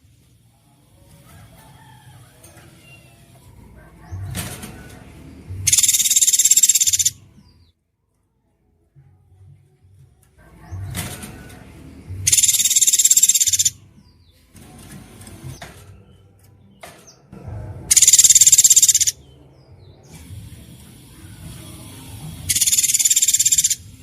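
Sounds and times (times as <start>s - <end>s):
songbird buzzing trill: 5.7s - 7.2s, 12.3s - 13.7s, 17.9s - 19.1s, 22.5s - 23.8s
faint bird chirps: 5.7s - 7.7s, 12.3s - 13.8s, 17.9s - 19.2s, 22.5s - 23.9s.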